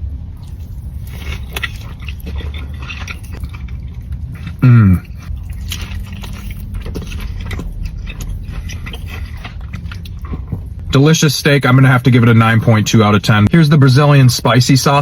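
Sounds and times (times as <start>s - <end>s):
low hum: 0.0s - 14.4s
person chewing steak: 0.3s - 10.8s.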